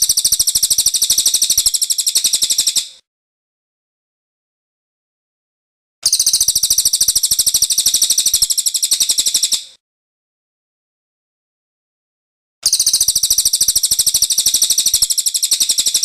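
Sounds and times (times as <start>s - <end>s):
bird trilling song: 0.0s - 3.0s, 6.0s - 9.8s, 12.6s - 16.0s.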